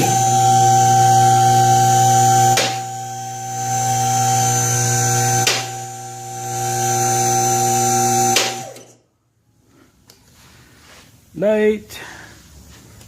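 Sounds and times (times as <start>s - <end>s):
hydraulic pump motor humming: 0.0s - 9.0s.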